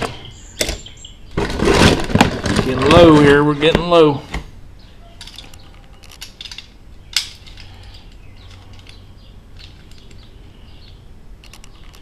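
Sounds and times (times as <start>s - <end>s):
toy cars clicking and rattling: 5.2s - 9.0s.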